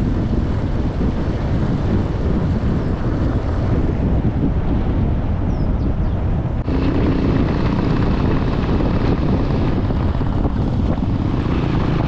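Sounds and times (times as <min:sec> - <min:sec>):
wind rumble on microphone: 0:00.0 - 0:12.0
vehicle engine hum: 0:06.1 - 0:12.0.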